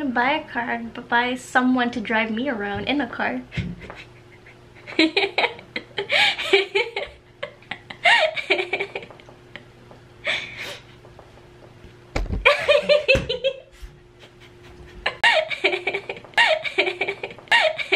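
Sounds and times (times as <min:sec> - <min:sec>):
faint steady hum: 0:00.0 - 0:17.9
people laughing: 0:03.8 - 0:09.4, 0:12.5 - 0:13.6, 0:14.2 - 0:17.9.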